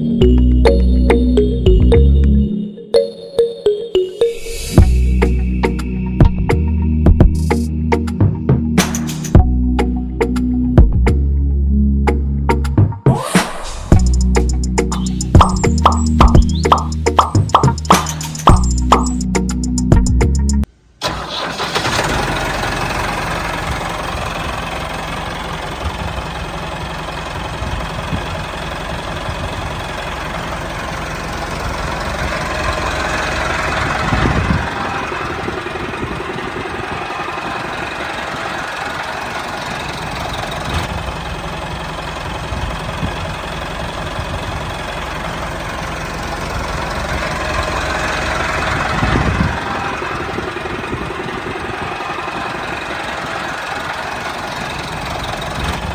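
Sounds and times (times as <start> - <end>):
small engine chugging: 22.7 - 55.9.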